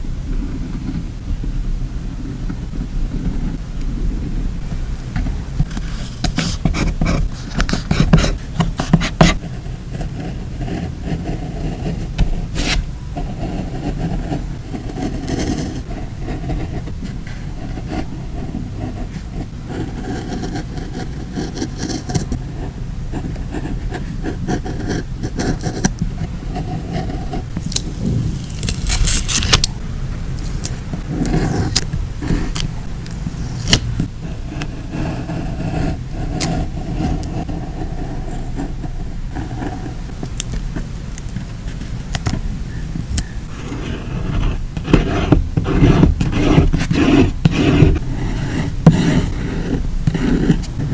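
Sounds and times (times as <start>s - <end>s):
low background hum: 0.0s - 50.9s
paper peeling and rustling: 27.4s - 34.1s.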